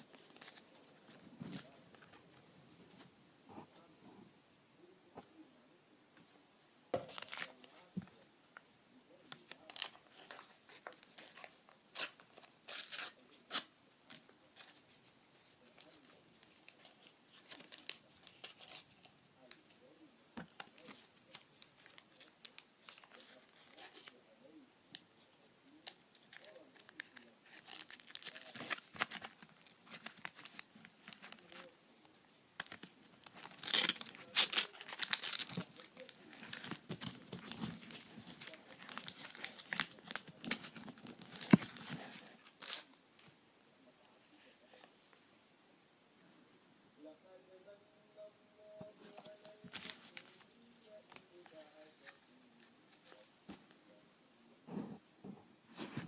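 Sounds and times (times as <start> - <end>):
paper packets tearing and crinkling: 9.5 - 13.7, 25.8 - 31.7, 32.6 - 42.9.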